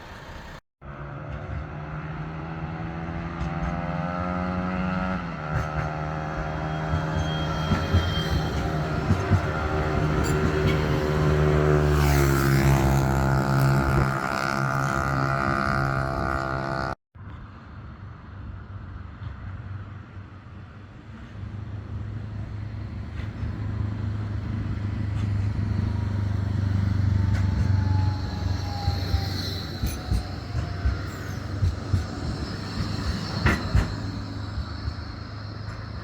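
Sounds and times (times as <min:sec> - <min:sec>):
tram electric drive whining: 0:00.0 - 0:00.6, 0:05.1 - 0:17.0, 0:20.8 - 0:36.0.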